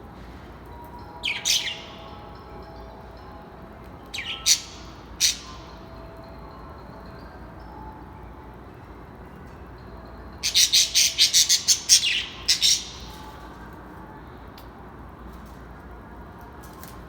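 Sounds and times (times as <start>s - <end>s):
faint high bird chirping: 0.8s - 2.4s, 4.1s - 6.0s, 10.4s - 13.7s
harsh bird calls: 4.2s - 5.8s, 10.4s - 13.4s.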